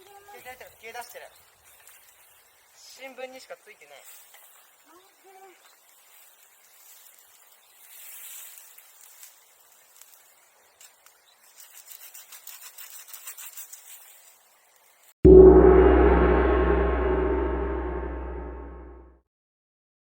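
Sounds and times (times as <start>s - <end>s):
soft rustle: 5.6s - 14.5s.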